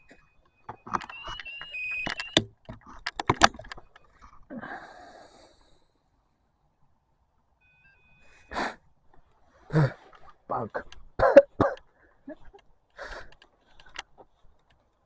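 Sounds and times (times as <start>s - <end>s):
electronic beeping tones: 0.0s - 2.5s, 7.6s - 8.5s
equipment clicks and knocks: 0.6s - 4.0s.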